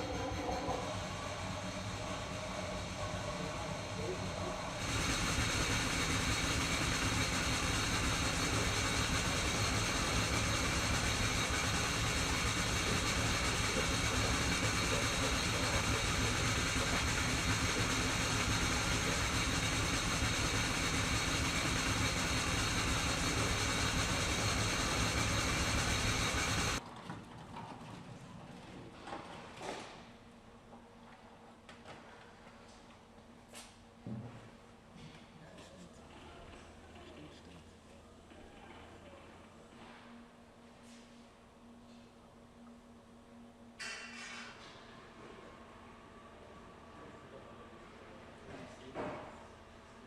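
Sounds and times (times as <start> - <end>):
machine humming and whining: 0.0 - 26.8.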